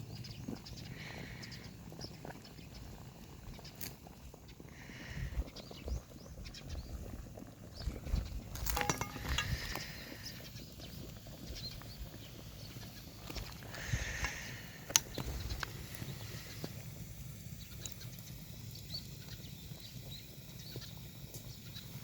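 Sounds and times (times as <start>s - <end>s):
bonfire crackling and popping: 0.0s - 22.0s
low rumble of fire: 0.0s - 22.0s
clatter with metallic ring: 8.5s - 10.0s.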